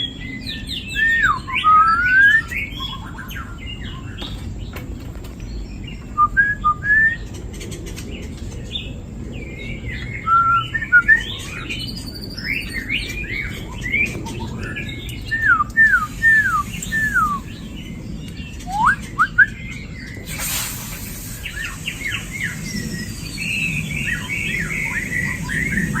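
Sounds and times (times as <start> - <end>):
young birds chirping and whistling: 0.0 - 4.7, 5.4 - 26.0
brief noisy rush: 20.3 - 23.2.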